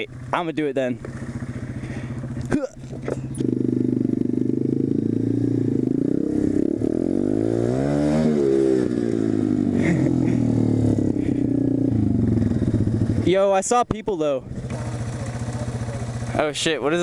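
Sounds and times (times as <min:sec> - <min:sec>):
pit bike engine running: 0:00.0 - 0:17.0.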